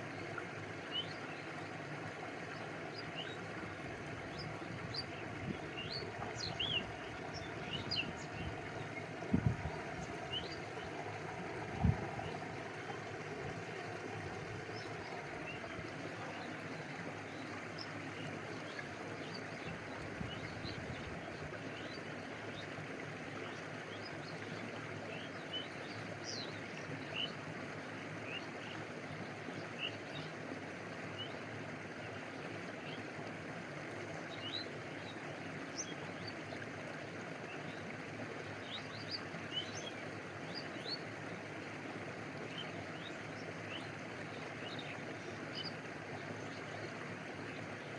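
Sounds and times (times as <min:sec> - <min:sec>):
water lapping: 0:00.0 - 0:21.9
stream rushing: 0:00.0 - 0:29.6
small birds chirping: 0:04.2 - 0:20.8.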